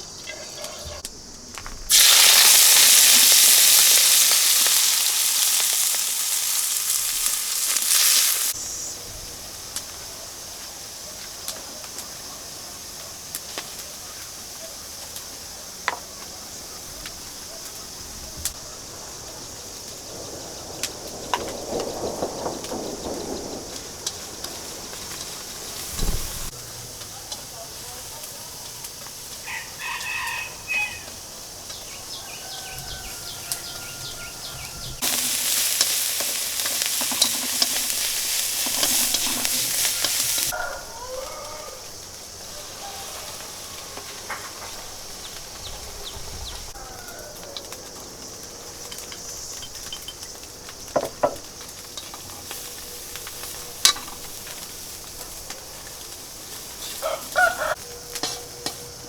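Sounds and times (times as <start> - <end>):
chicken calls: 1.9 - 8.6, 29.4 - 44.8, 56.8 - 58.2
utensil stirring in a pan: 1.9 - 8.6, 35.0 - 40.6
food sizzling in a pan: 1.9 - 16.0, 18.4 - 47.7, 48.9 - 58.8.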